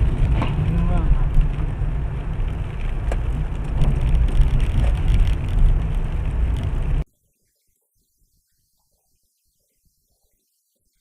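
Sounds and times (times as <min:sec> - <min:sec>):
car road and wind rumble: 0:00.0 - 0:07.0.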